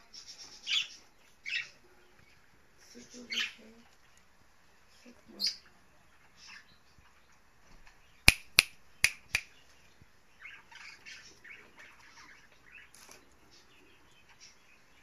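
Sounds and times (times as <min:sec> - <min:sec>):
pet birds chirping: 0:00.0 - 0:15.0
sharp clicks: 0:08.3 - 0:09.5.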